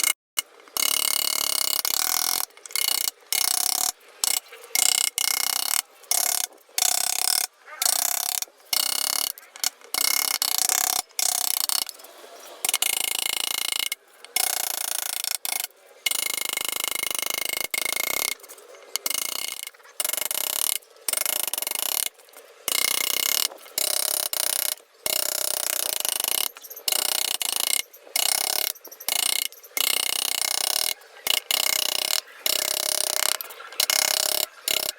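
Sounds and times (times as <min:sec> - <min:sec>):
chisel carving wood: 0:00.8 - 0:34.9.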